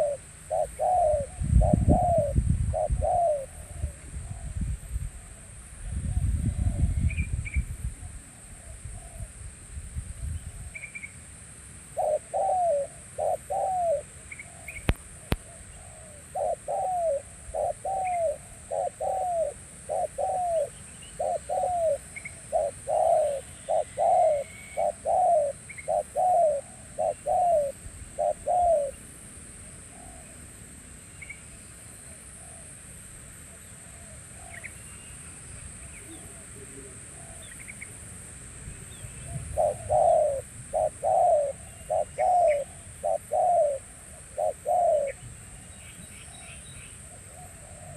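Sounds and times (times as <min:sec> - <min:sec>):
dove cooing: 0:00.0 - 0:06.9, 0:12.0 - 0:29.0, 0:29.7 - 0:30.4, 0:35.8 - 0:37.7, 0:39.2 - 0:45.7, 0:46.4 - 0:47.9
steady high-pitched hiss: 0:00.0 - 0:47.9.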